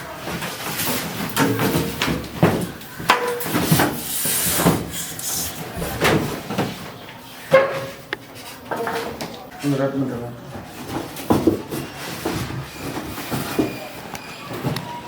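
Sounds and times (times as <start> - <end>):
scraping and rustling: 0.2 - 9.2
knocks and thuds of packaging: 0.3 - 4.9, 10.8 - 13.9.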